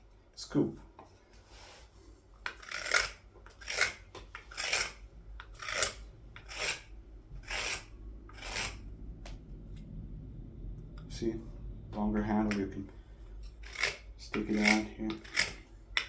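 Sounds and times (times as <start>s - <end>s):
knife scraping wood: 1.6s - 8.8s, 13.4s - 16.0s.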